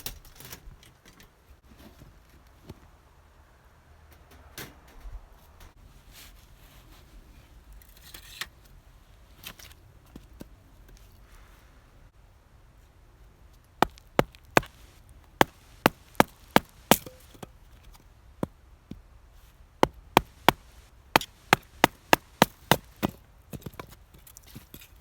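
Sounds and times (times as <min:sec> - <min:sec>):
knife splitting firewood: 0:13.8 - 0:17.5, 0:19.8 - 0:24.9.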